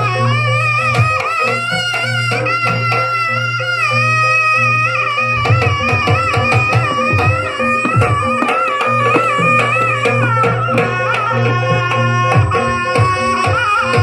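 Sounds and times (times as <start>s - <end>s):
reed-like melody: 5.1s - 11.0s
drums: 5.3s - 14.0s.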